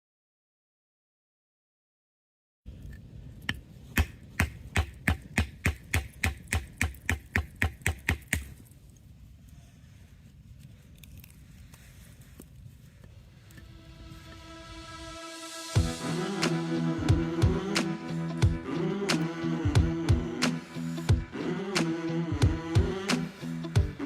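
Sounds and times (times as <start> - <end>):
outdoor background noise: 2.7 - 16.6
blade chopping into wood: 3.9 - 8.5.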